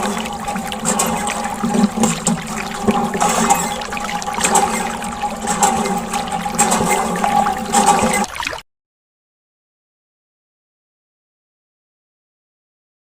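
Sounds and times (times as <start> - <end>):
water splashing and trickling: 0.0 - 8.6.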